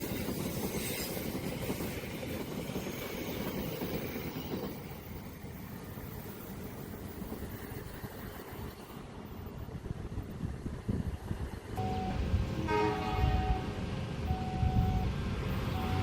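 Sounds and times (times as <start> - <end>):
train rumbling and rattling: 0.0 - 16.0.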